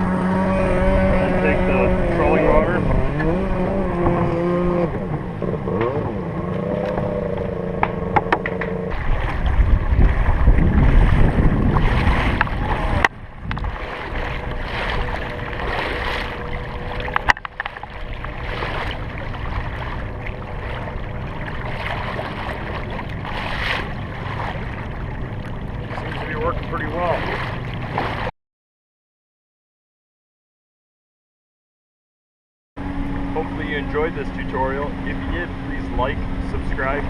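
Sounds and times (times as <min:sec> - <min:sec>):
water noise: 0:00.0 - 0:28.3, 0:32.8 - 0:37.0
wind on microphone: 0:00.0 - 0:28.3.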